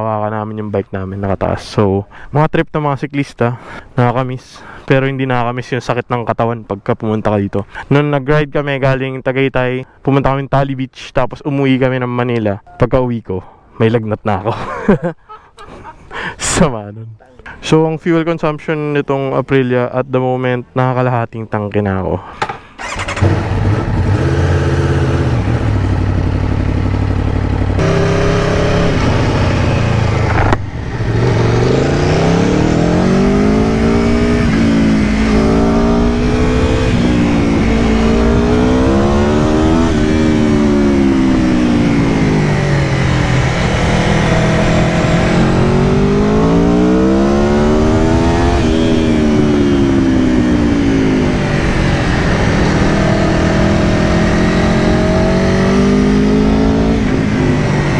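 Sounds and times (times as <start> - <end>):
motorcycle engine revving: 22.8 - 57.9.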